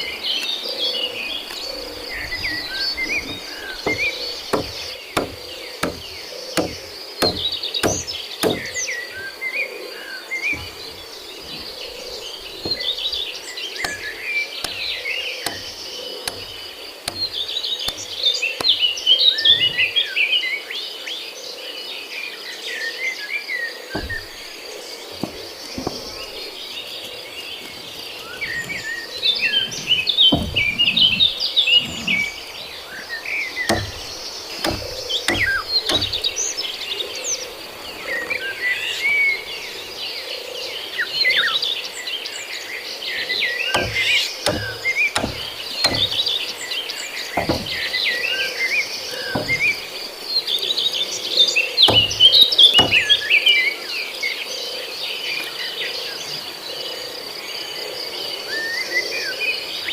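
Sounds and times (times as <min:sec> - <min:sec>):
knocks and thumps: 0:02.2 - 0:08.9, 0:10.5 - 0:20.0, 0:23.9 - 0:26.7, 0:28.4 - 0:32.5, 0:33.7 - 0:36.7, 0:43.7 - 0:48.2, 0:49.1 - 0:50.2, 0:51.8 - 0:53.3.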